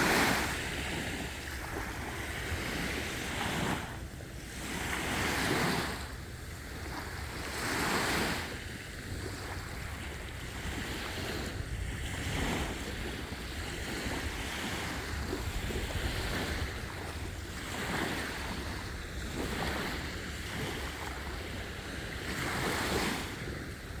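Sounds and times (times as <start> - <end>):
sea waves washing onto beach: 0.0 - 24.0
wind rumbling on microphone: 0.0 - 24.0.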